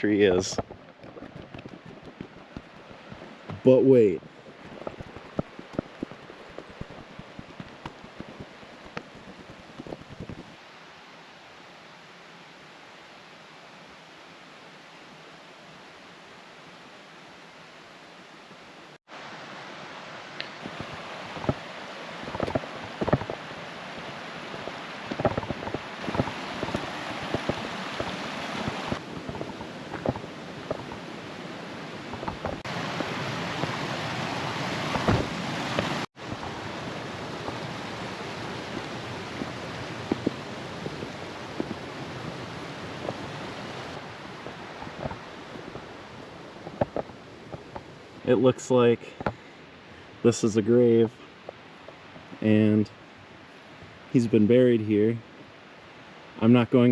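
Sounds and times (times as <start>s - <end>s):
crunches and knocks: 0.5s - 3.8s, 4.4s - 10.5s, 20.5s - 23.5s, 24.6s - 31.0s, 32.1s - 33.8s, 34.9s - 36.0s.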